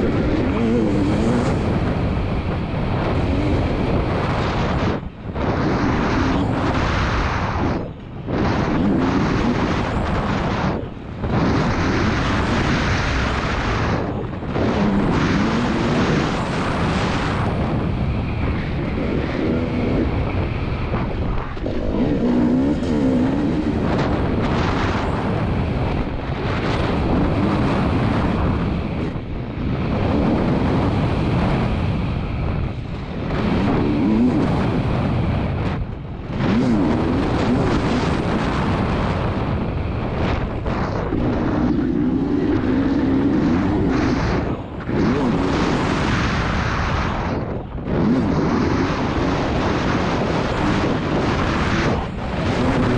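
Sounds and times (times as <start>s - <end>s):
motocross engine revving: 0.0s - 2.0s, 11.2s - 17.4s, 21.0s - 25.1s, 33.0s - 34.8s, 36.3s - 38.4s
wind noise on microphone: 0.0s - 52.9s.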